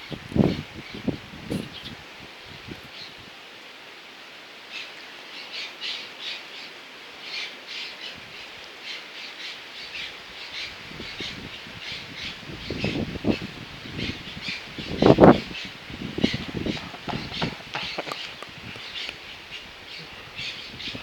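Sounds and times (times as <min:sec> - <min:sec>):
steady background hiss: 0:00.0 - 0:21.0
bird chirping harshly: 0:14.0 - 0:21.0.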